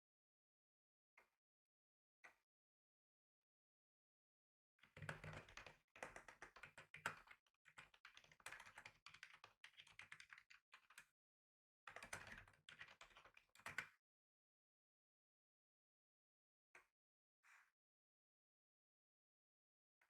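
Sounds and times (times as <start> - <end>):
computer keyboard typing: 5.0 - 10.4.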